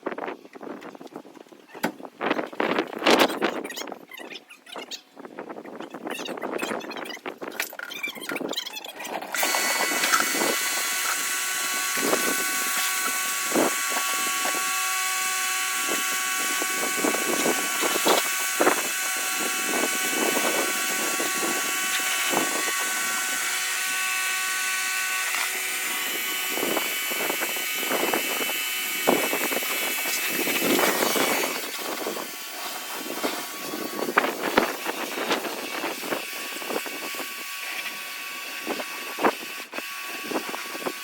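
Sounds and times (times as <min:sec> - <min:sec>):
car wash machinery running: 0:09.4 - 0:36.0.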